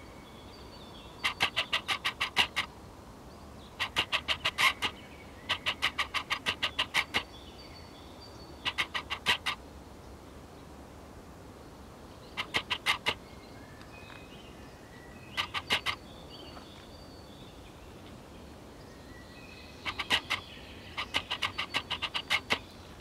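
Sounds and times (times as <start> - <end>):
faint whistled birdsong: 0.0 - 9.7, 11.7 - 23.0
bird harsh chattering calls: 1.2 - 2.8, 3.6 - 7.6, 8.6 - 9.6, 12.2 - 13.3, 15.2 - 16.1, 19.8 - 23.0.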